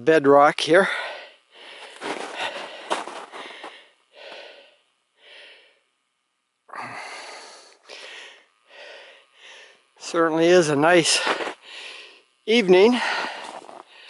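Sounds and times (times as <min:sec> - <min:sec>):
person breathing heavily: 0:00.8 - 0:05.9, 0:06.7 - 0:09.9, 0:11.1 - 0:14.0.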